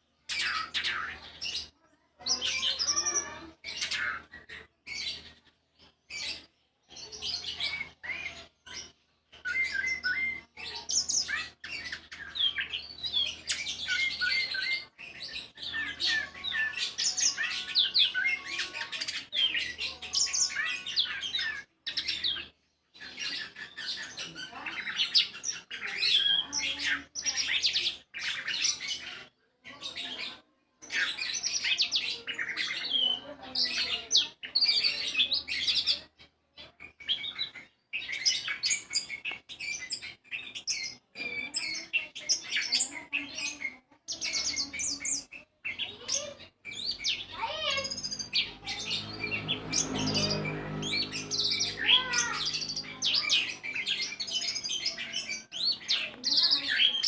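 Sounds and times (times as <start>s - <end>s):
thrush singing chirps and whistles: 9.4s - 22.5s.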